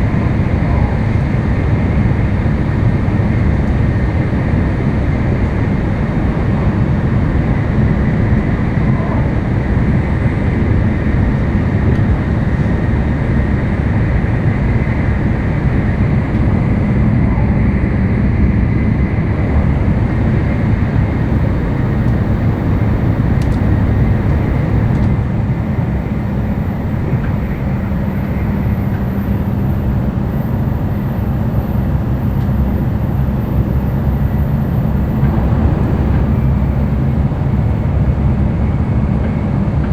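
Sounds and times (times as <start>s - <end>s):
train running at speed: 0.0s - 39.9s.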